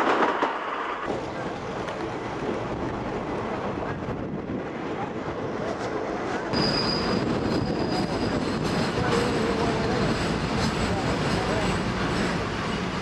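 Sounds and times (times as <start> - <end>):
train running: 0.0 - 13.0
high metallic squeal: 6.5 - 9.0.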